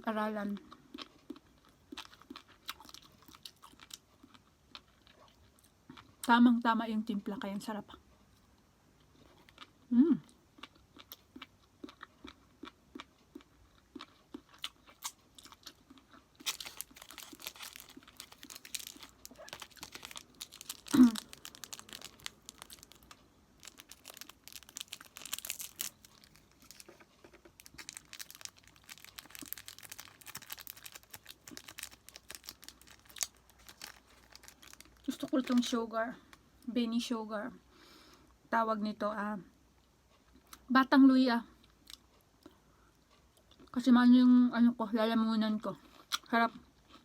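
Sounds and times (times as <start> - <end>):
person chewing: 0.6 - 6.2, 9.0 - 35.6
person humming: 9.9 - 10.2
plastic packaging crinkling: 16.4 - 35.8.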